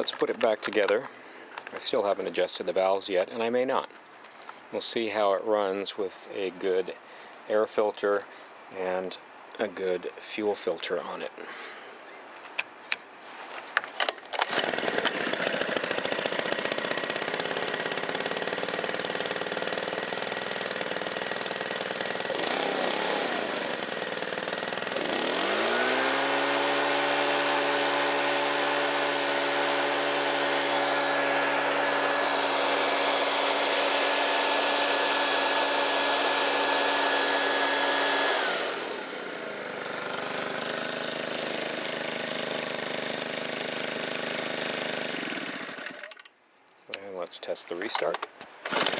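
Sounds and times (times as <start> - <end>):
leaf blower engine running: 14.4 - 46.2, 48.7 - 48.9.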